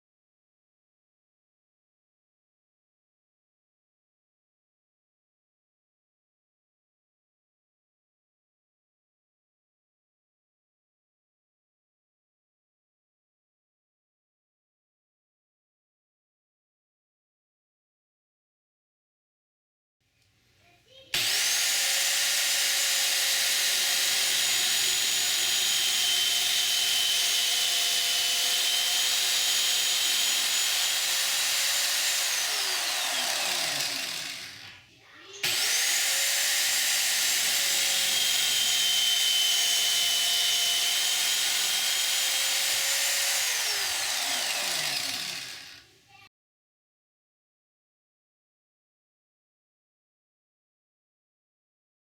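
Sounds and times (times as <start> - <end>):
electric drill motor whining: 21.2 - 34.8, 35.4 - 45.9.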